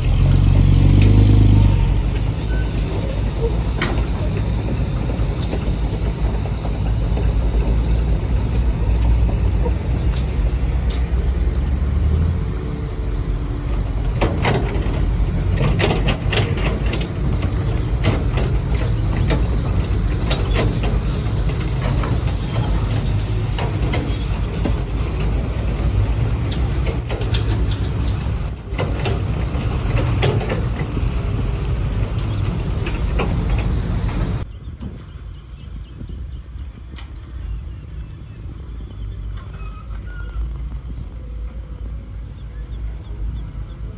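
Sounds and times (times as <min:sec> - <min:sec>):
sharp clicks and knocks: 0:14.0 - 0:35.0.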